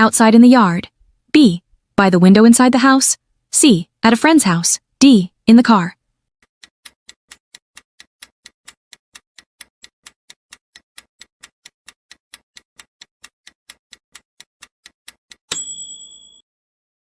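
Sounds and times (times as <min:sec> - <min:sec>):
bright chime: 0:15.5 - 0:16.4.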